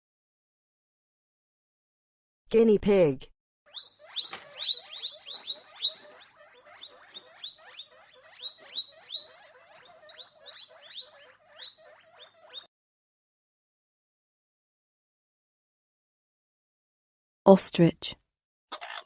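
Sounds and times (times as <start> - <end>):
guinea pig squeaking: 3.7 - 12.7.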